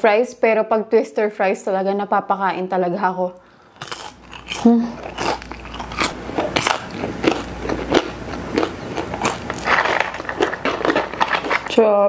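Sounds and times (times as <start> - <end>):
chewing crispy fries: 3.6 - 12.0.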